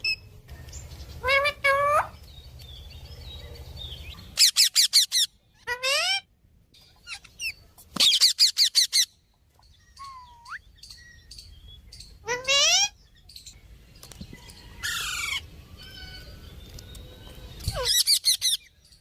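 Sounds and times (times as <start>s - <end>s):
parrots squawking: 1.2s - 2.2s, 4.3s - 6.3s, 7.0s - 9.1s, 12.2s - 13.0s, 14.8s - 16.3s.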